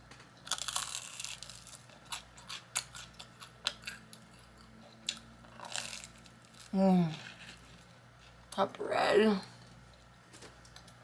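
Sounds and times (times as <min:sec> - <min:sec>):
crunchy chewing: 0:00.4 - 0:08.6.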